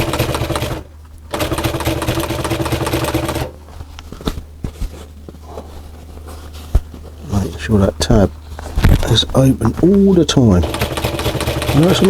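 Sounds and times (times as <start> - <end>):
sewing machine stitching: 0.0 - 3.6, 10.6 - 12.0.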